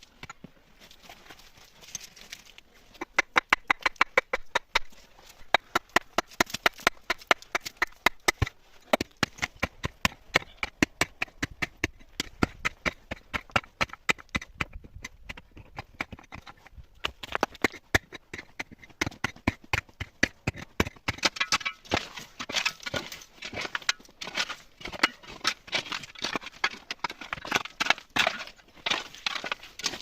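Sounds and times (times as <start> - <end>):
sharp knocks and clicks: 3.0 - 4.9.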